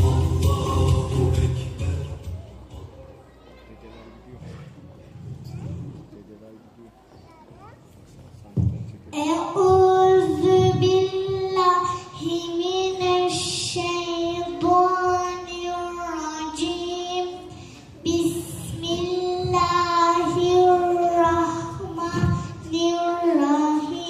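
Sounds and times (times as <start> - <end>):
child chanting: 9.2 - 24.0.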